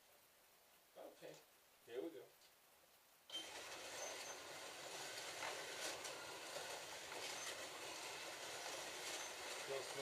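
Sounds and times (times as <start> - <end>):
slot cars whirring on track: 3.3 - 10.0.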